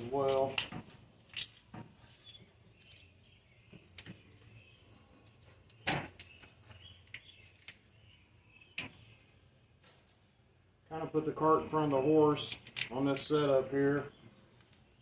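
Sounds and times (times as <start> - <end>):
faint birds chirping: 0.0 - 15.0
clicks and knocks from wiring: 0.2 - 2.4, 12.5 - 13.2.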